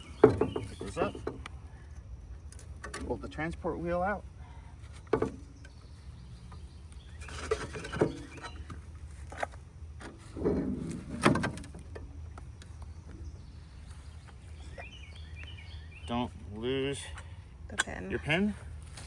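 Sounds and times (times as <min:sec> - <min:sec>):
metal knocks and scraping rattles: 0:00.0 - 0:01.5, 0:04.9 - 0:05.8, 0:07.2 - 0:12.8
faint bird chirps: 0:12.8 - 0:16.4.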